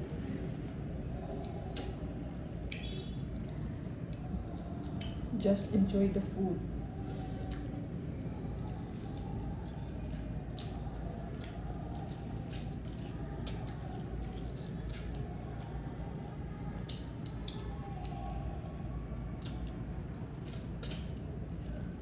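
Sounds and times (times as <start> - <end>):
steady low hum: 0.0 - 22.0
crunchy chewing: 6.6 - 22.0.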